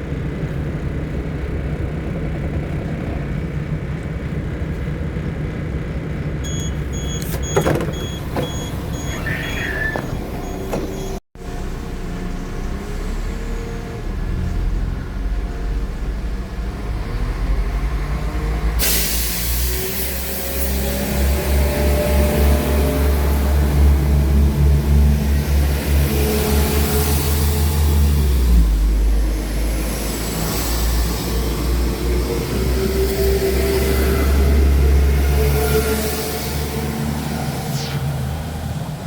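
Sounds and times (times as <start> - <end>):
train diesel engine rumble: 0.0 - 39.0
short repeated beeps: 6.5 - 11.1
hiss: 18.8 - 20.8.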